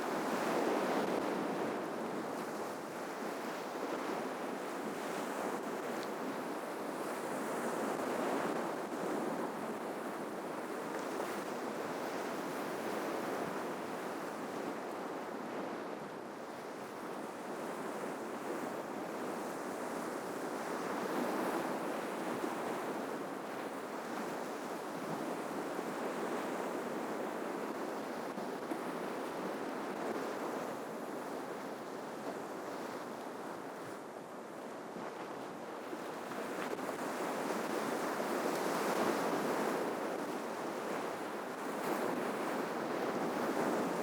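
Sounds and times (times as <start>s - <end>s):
ocean waves breaking on shore: 16.2s - 44.0s.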